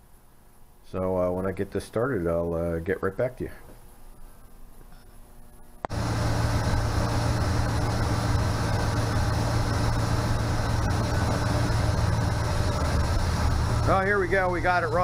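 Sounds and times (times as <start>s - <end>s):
car engine running: 5.9s - 15.0s.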